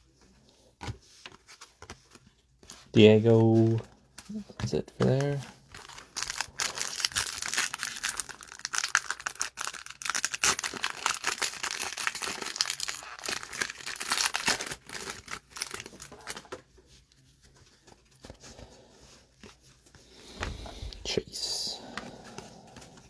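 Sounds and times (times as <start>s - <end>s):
foil wrapper tearing and crinkling: 5.2s - 16.5s.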